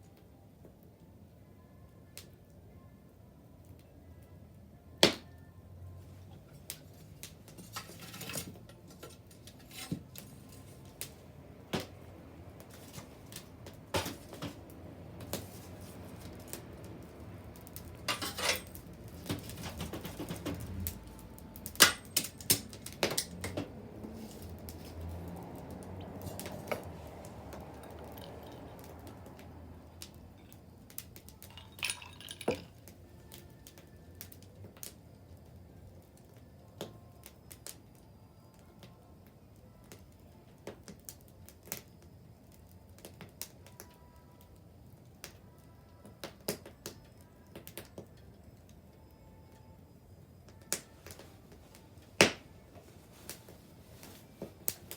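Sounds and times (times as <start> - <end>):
bonfire crackling and popping: 9.2 - 38.0, 38.6 - 48.8, 50.5 - 54.9.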